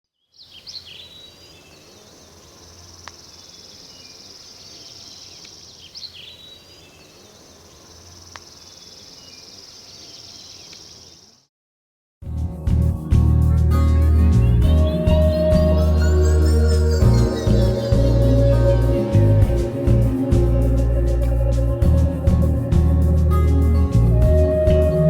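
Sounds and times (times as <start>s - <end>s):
insects chirring: 0.4s - 11.4s
soft music: 12.2s - 25.0s.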